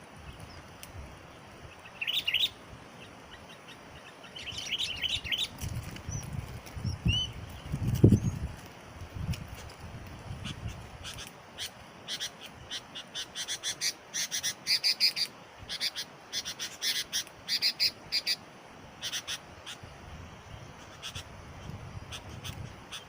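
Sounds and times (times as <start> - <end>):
bird chirping: 1.7 - 8.4.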